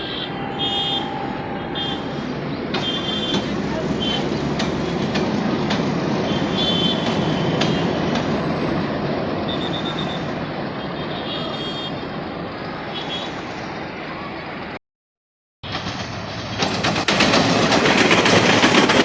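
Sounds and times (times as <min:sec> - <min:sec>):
train carriages rumbling: 0:00.0 - 0:14.8, 0:15.6 - 0:19.0
train wheels clicking over rail joints: 0:02.5 - 0:10.4, 0:15.7 - 0:19.0.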